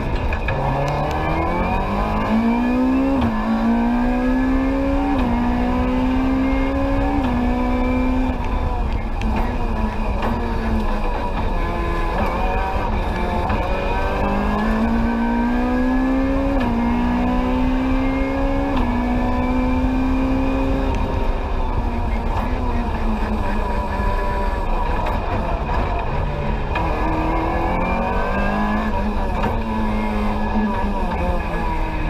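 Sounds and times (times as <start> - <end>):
car engine under full throttle: 0.0 - 32.0
road and tyre rumble: 0.0 - 32.0.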